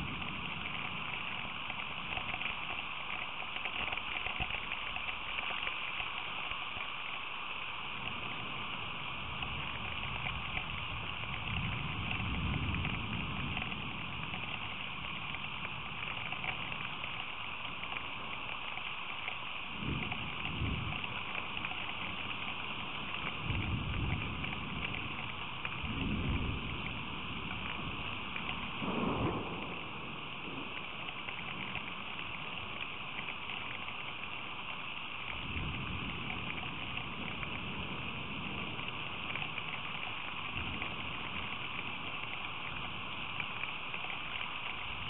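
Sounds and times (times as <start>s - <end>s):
rain falling: 0.0s - 45.0s
low rumbles: 19.8s - 34.4s.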